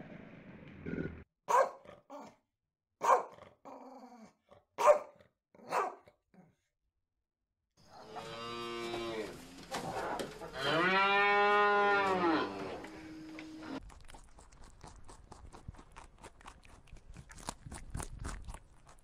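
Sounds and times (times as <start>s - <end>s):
dog barking: 1.5s - 2.3s, 3.0s - 3.5s, 4.8s - 6.2s
cow mooing: 8.0s - 9.4s, 10.4s - 13.8s.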